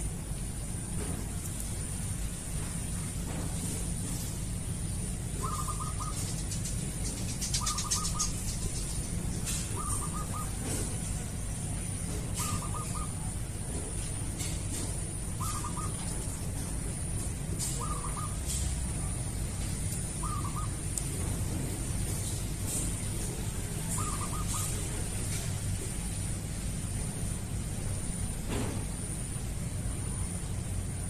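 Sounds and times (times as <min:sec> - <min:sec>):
steady high whine: 0:00.0 - 0:31.0
bird call: 0:05.3 - 0:11.1, 0:12.1 - 0:13.8, 0:14.4 - 0:16.4, 0:17.6 - 0:19.2, 0:20.2 - 0:20.8, 0:22.6 - 0:25.5.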